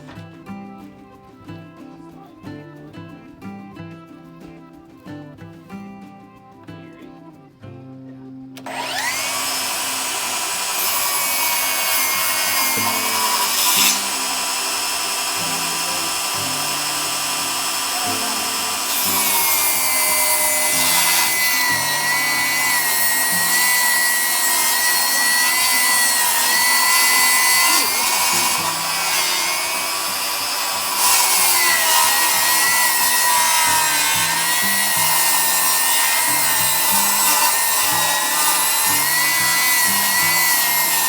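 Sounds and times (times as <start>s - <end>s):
background music: 0.0s - 41.0s
table saw ripping a board: 8.6s - 41.0s.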